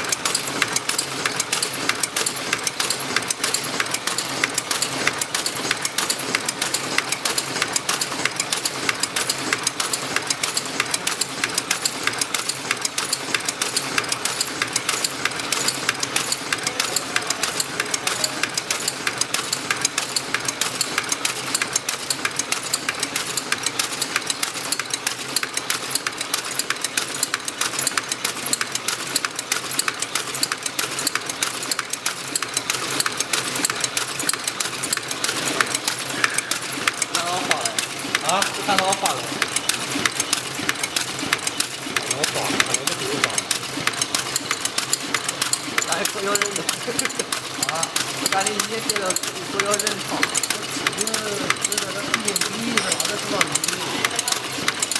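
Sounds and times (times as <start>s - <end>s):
packaging machine clattering: 0.0s - 54.9s.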